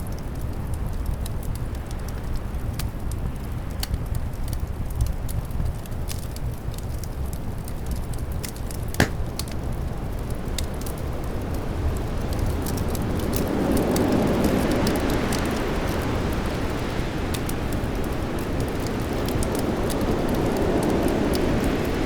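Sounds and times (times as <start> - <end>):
fireplace crackling: 7.6 - 10.2.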